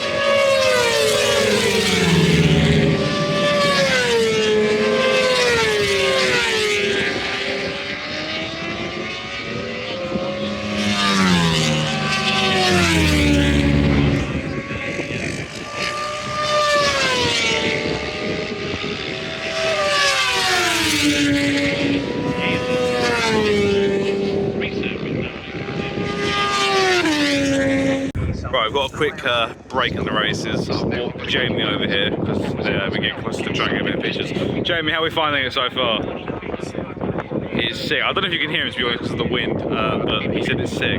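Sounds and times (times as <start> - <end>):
racing motorcycles passing: 0.0 - 28.2.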